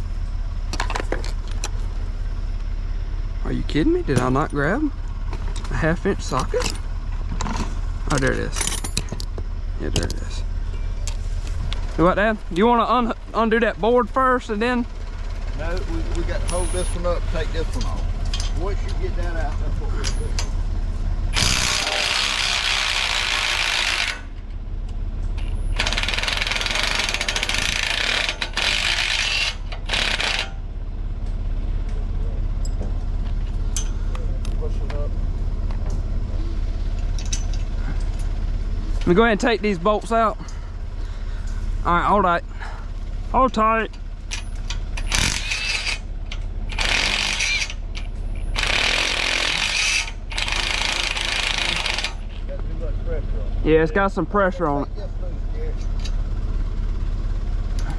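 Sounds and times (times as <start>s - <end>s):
low engine hum: 0.0s - 57.9s
impact wrench bursts: 21.3s - 24.5s, 25.4s - 30.7s, 44.2s - 52.5s
socket ratchet clicking: 46.7s - 52.2s.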